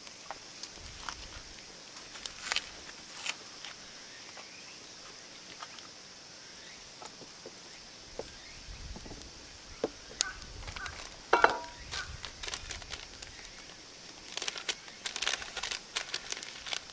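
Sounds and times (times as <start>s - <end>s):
steady high hiss: 0.0s - 16.9s.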